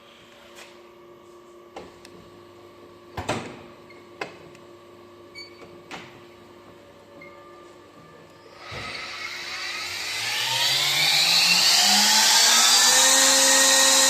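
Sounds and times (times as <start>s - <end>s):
edgebander machine humming: 8.4s - 14.0s.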